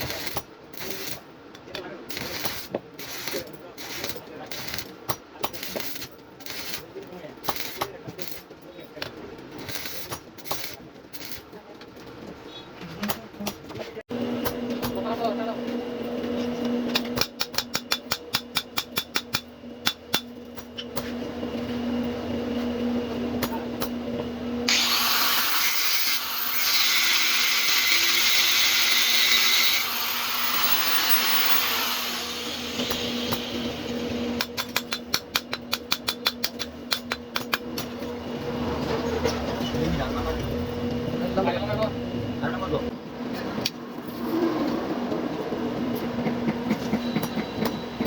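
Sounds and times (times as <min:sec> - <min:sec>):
angle grinder running: 0:24.7 - 0:34.4.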